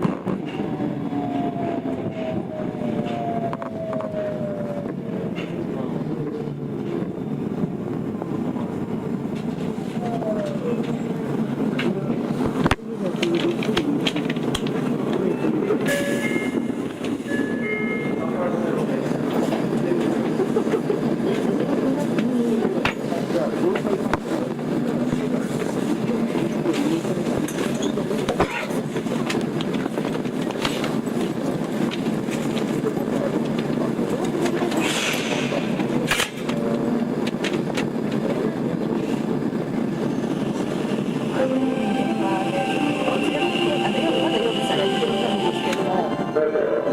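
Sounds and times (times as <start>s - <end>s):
wheels rumbling on rail: 0.0s - 46.9s.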